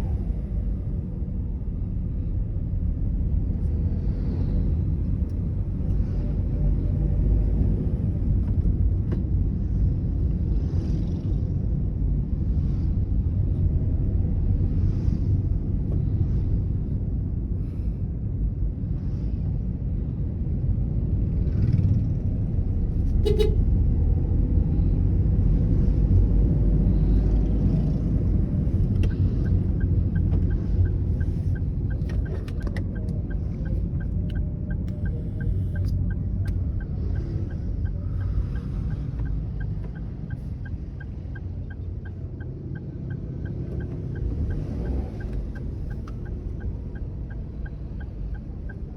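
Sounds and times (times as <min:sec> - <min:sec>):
engine and road noise: 0:00.0 - 0:48.9
light regular ticking: 0:28.9 - 0:48.9.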